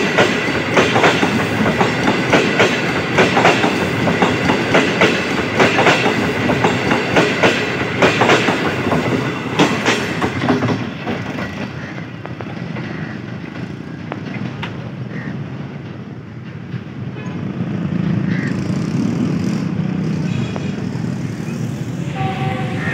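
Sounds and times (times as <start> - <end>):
wheels clacking over rail joints: 0.0 - 18.2
train rumbling: 0.0 - 22.9.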